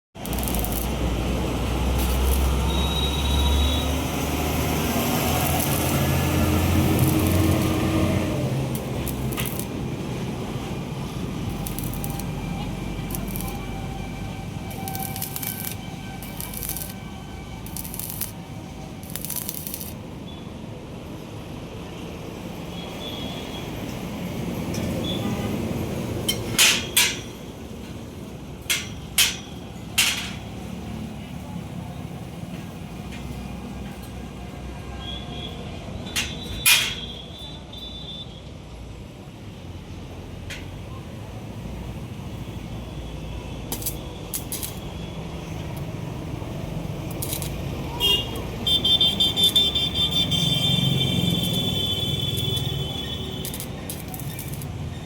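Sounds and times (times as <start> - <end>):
arc welding hum: 0.2 - 21.4, 41.4 - 55.0
low workshop background: 0.2 - 50.0, 51.4 - 55.0.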